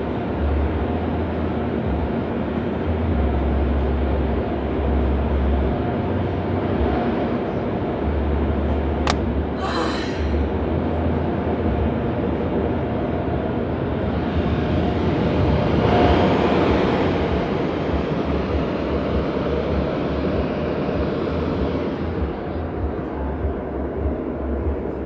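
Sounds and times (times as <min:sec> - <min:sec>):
short hiss: 0:09.1 - 0:10.4
car wash machinery roar: 0:12.6 - 0:24.7.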